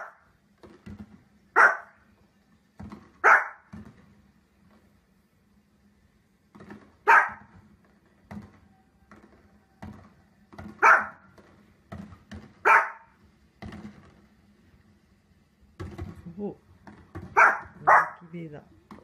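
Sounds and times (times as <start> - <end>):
small dog barking: 0.0 - 0.2, 1.6 - 2.0, 3.2 - 3.7, 7.0 - 7.5, 10.8 - 11.2, 12.6 - 13.2, 17.3 - 18.3.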